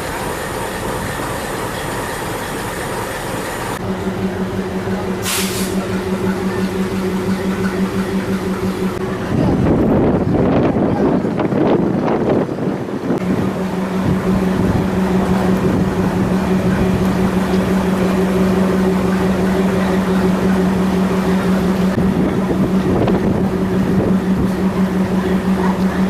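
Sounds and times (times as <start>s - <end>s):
steady engine hum: 0.0s - 26.0s
wind buffeting microphone: 5.8s - 26.0s.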